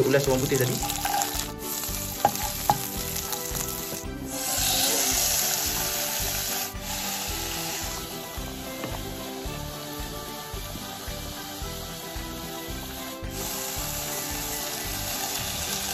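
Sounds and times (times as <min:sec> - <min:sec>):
wooden spoon stirring in a pan: 0:00.0 - 0:08.0
food sizzling in hot oil: 0:00.0 - 0:15.9.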